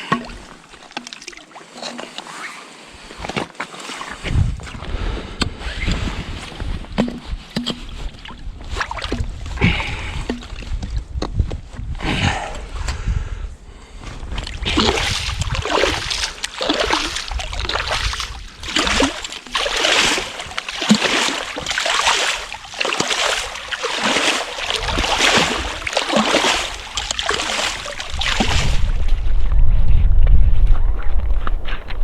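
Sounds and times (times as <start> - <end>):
slushy water splashing: 0.0 - 4.8, 6.1 - 10.8, 14.3 - 30.0.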